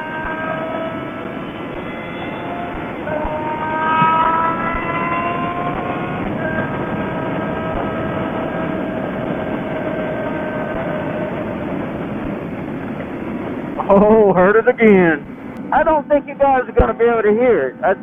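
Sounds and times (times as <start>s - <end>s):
motorcycle engine accelerating: 0.0s - 13.6s
wind rush: 0.0s - 18.0s.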